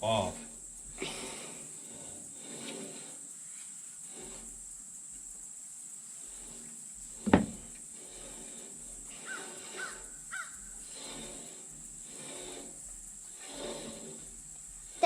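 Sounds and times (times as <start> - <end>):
crow cawing: 9.2 - 10.6.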